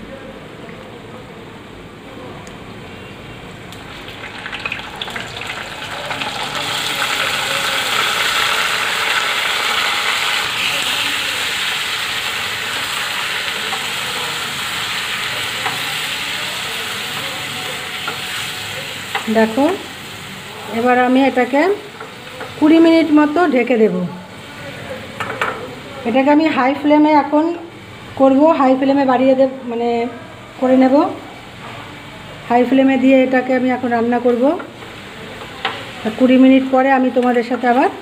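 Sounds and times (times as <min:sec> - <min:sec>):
chicken frying in oil: 0:03.8 - 0:23.4.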